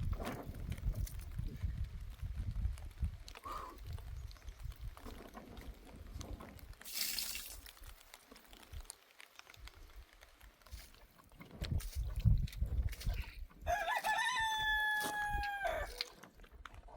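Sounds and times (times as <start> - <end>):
water dripping and trickling: 0.4 - 14.2, 14.8 - 16.8
water pouring splash: 6.8 - 7.8.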